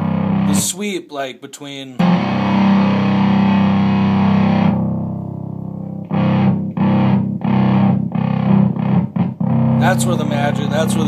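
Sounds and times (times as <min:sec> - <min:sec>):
fuzzy electric guitar chord: 0:00.0 - 0:00.6, 0:02.0 - 0:11.0
choppy guitar chord strums: 0:00.0 - 0:00.8, 0:02.0 - 0:11.0.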